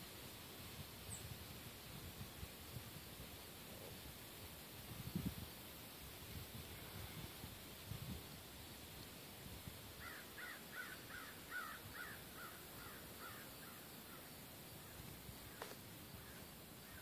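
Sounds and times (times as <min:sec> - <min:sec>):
bird calling: 0:10.0 - 0:17.0.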